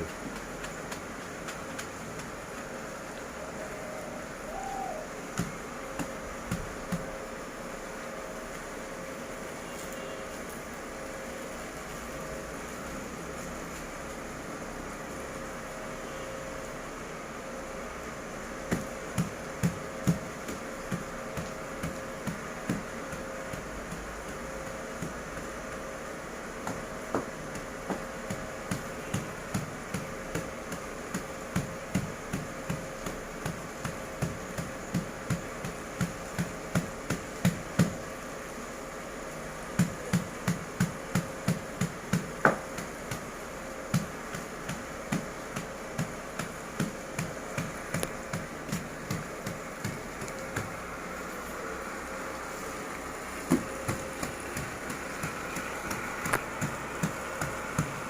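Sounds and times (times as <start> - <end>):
steady faint hum: 0.0 - 58.0
dull thumps: 53.4 - 58.0.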